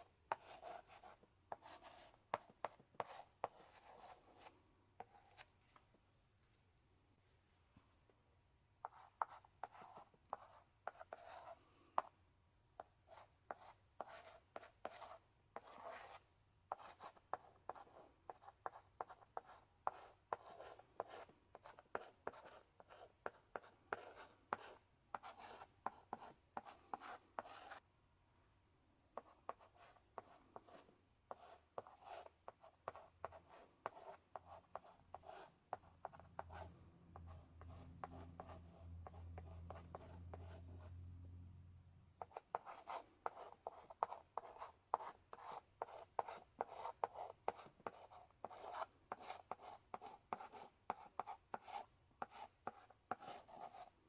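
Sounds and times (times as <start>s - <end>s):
chalk scratching on blackboard: 0.0s - 5.8s, 8.8s - 12.1s, 13.1s - 27.8s, 29.2s - 41.0s, 42.2s - 54.0s
chalk tapping on blackboard: 42.2s - 53.9s.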